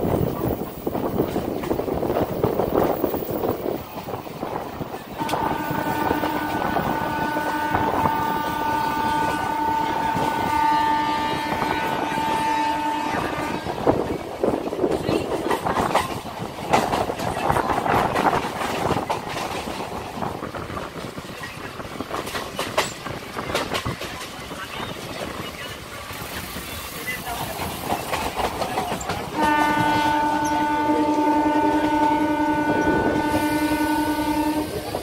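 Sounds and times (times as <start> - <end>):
rail joint clicks: 0.0 - 35.0
train wheels clattering on track: 0.0 - 35.0
train horn blast: 5.2 - 13.9, 29.3 - 35.0.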